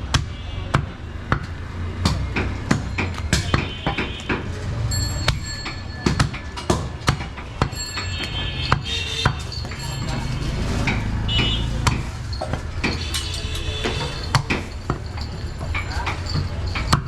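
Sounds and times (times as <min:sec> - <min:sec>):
cleaver chopping meat and bone: 0:00.1 - 0:04.5.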